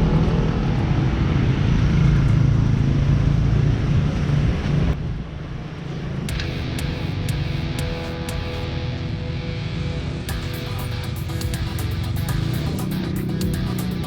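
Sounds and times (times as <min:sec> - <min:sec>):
rhythmic music clicks: 0:06.3 - 0:08.9, 0:10.3 - 0:14.0.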